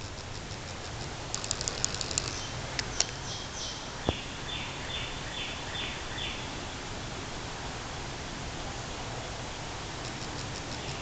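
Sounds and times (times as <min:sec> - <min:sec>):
birds chirping: 0:00.0 - 0:06.4
steady outdoor hiss: 0:00.0 - 0:11.0
sharp click: 0:00.2 - 0:03.2.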